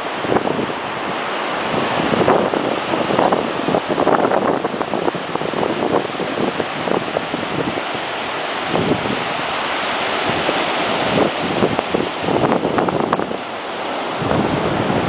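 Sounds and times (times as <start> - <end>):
ocean surf washing on beach: 0.0 - 15.0
wind buffeting microphone: 0.0 - 15.0.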